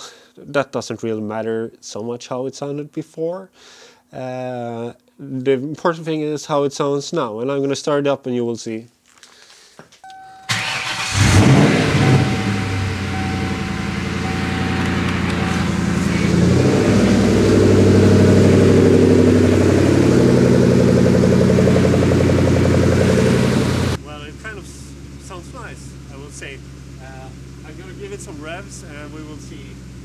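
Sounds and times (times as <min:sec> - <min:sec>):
car engine starting and idling: 0:10.1 - 0:30.0.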